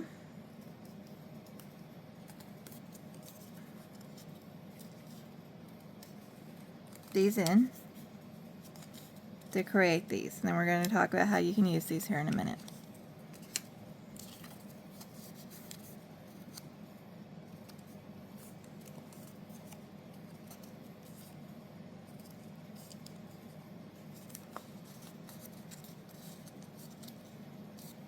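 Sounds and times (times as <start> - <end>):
low steady hum: 0.0 - 28.0
paper crinkles and taps: 24.1 - 28.0.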